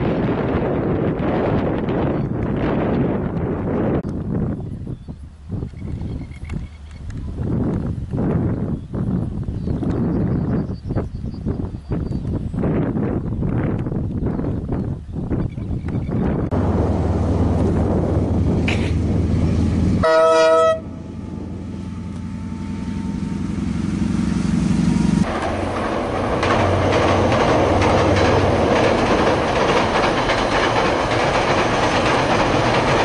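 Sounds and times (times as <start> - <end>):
locomotive engine rumble: 15.8 - 33.0
locomotive horn blast: 18.6 - 25.3
freight wagons clattering on bridge: 25.3 - 33.0.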